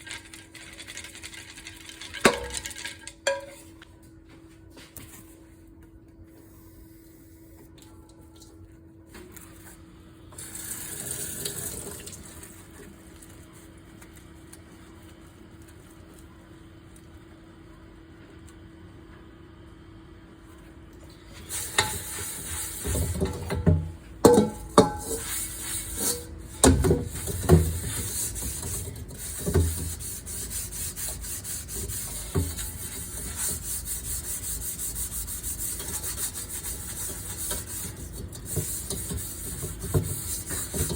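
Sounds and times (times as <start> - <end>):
dishes clunking in sink: 3.2 - 3.7, 22.9 - 25.2
water running from tap into sink: 10.4 - 12.6, 21.4 - 40.9.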